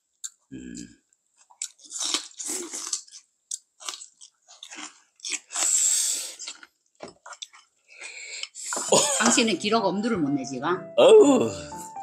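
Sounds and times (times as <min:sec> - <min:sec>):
chewing and crunching food: 0:01.4 - 0:08.8
slurp: 0:05.3 - 0:06.7.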